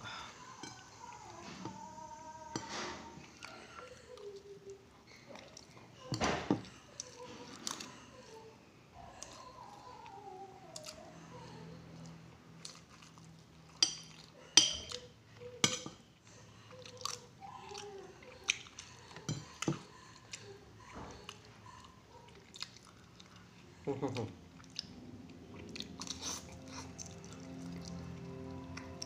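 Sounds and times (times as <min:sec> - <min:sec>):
chewing noodles: 0:11.8 - 0:15.6, 0:16.3 - 0:29.0
cutlery clinking on ceramic plate: 0:13.8 - 0:15.0.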